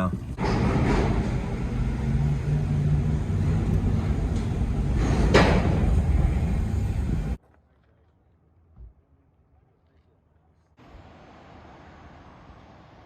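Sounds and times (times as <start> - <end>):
car tyres and engine rumble: 0.0 - 13.0.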